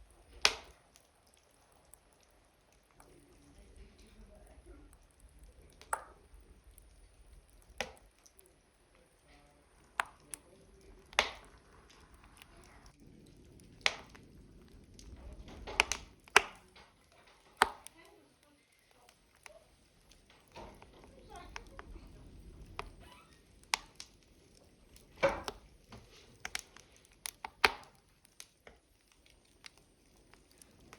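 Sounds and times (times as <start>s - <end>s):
burning logs crackling and popping: 0.0s - 30.9s.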